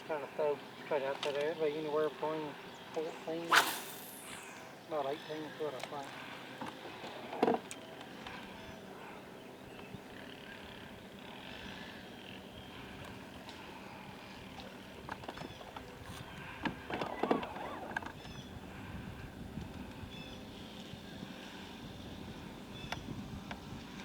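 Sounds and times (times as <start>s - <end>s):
background hiss: 3.0s - 5.3s
short sharp sound: 3.5s - 4.6s.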